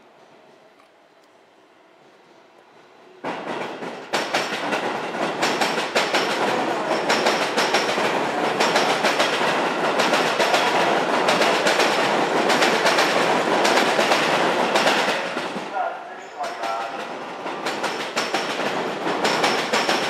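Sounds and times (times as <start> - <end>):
train wheels clattering over rail joints: 3.2 - 15.7, 16.5 - 20.0.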